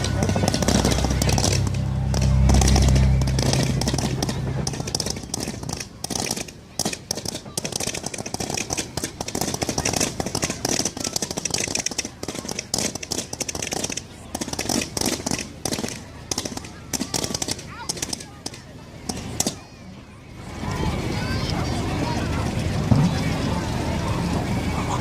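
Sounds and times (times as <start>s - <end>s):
deep low rumble: 0.0s - 6.0s
fireworks crackling and popping: 0.0s - 19.6s.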